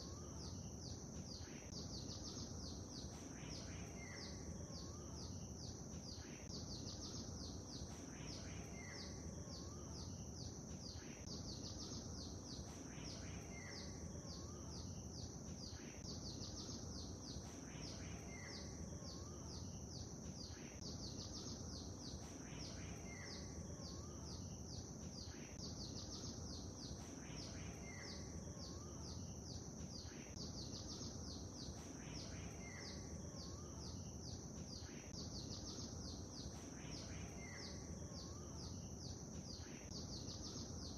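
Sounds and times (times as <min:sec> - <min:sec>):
birds chirping: 0:00.0 - 0:40.9
low background noise: 0:00.0 - 0:40.9.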